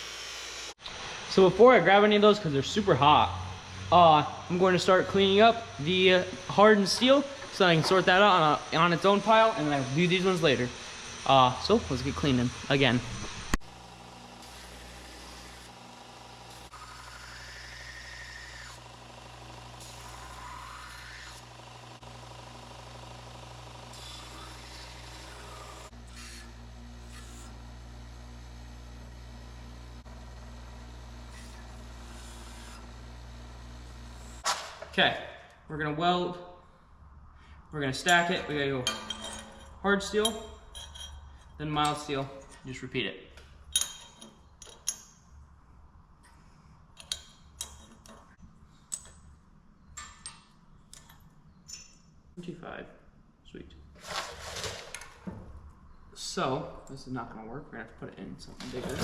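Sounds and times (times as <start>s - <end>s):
motor drone: 0.0s - 1.6s, 2.5s - 34.4s
steel pieces clinking: 38.0s - 42.1s, 43.7s - 45.2s.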